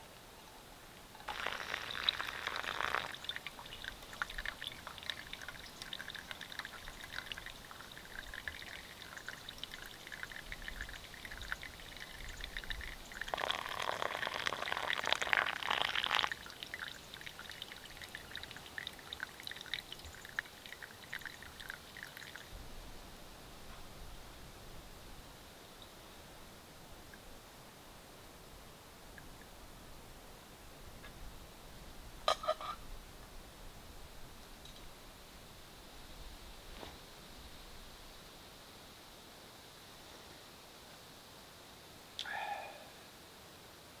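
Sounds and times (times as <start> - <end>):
coffee dripping into metal mug: 1.2 - 22.5
water pouring into coffee filter: 1.2 - 22.5.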